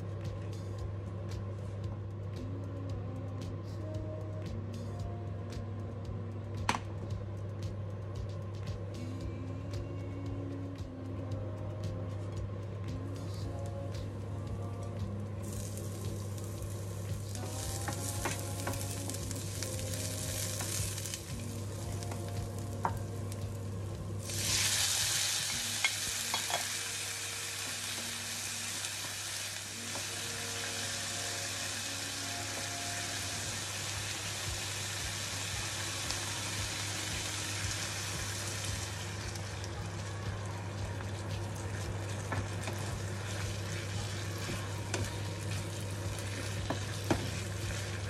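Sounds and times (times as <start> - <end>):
low hum: 0.0 - 48.0
food sizzling in hot oil: 15.4 - 48.0.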